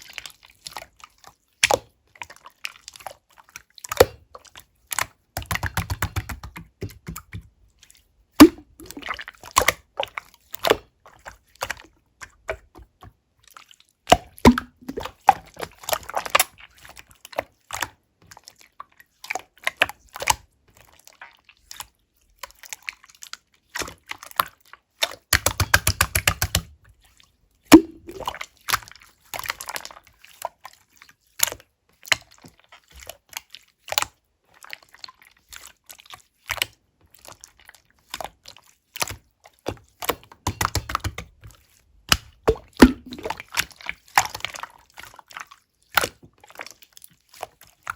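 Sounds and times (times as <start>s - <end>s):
slime squeezed by hand: 8.4s - 9.2s, 14.2s - 15.1s, 27.7s - 28.4s, 42.5s - 43.4s.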